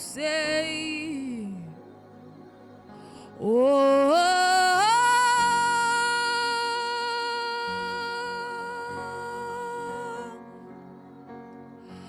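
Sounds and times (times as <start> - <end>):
soft backing chords: 0.0 - 12.0.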